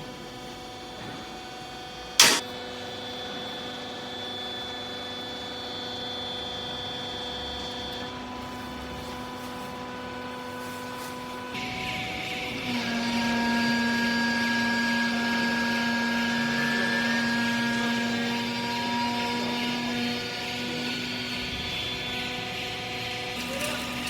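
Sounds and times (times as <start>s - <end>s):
sharp metal clank: 2.2s - 2.4s.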